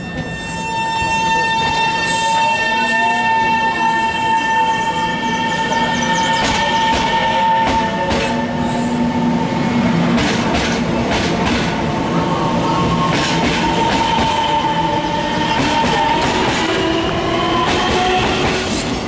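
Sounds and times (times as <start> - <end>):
train wheels clacking over joints: 10.1 - 11.8, 13.0 - 14.6.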